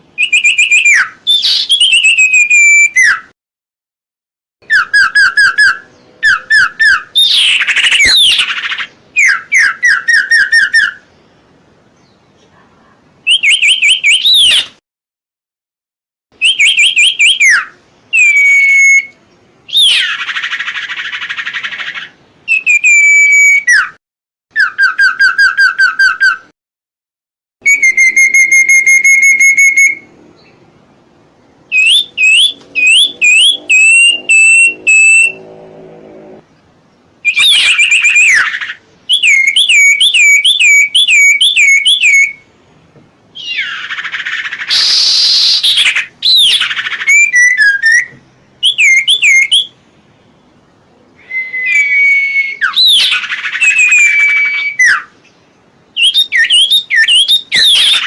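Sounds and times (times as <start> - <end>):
songbird whistling: 0.2 - 3.3, 4.6 - 11.1, 13.2 - 14.8, 16.4 - 26.5, 27.6 - 30.6, 31.7 - 35.4, 37.2 - 42.4, 43.4 - 49.8, 51.2 - 55.3, 55.9 - 58.0
harsh rasping bird call: 31.7 - 36.4, 43.4 - 49.7.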